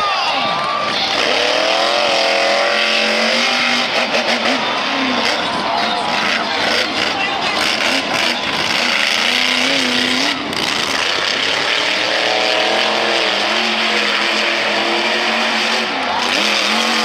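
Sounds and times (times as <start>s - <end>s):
monster truck engine revving: 0.0s - 17.0s.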